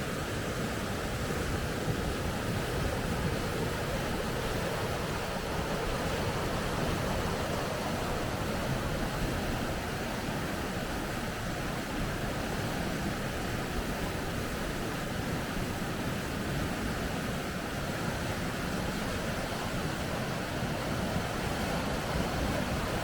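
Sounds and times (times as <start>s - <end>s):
river rapids rushing: 0.0s - 23.0s.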